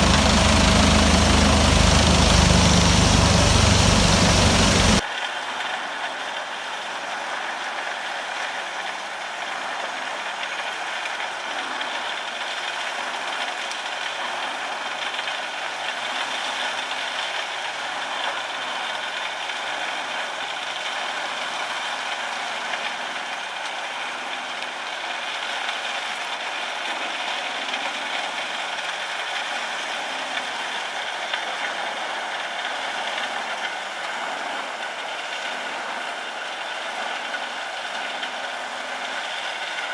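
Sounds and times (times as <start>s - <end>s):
heavy machine engine rattling: 0.0s - 5.0s.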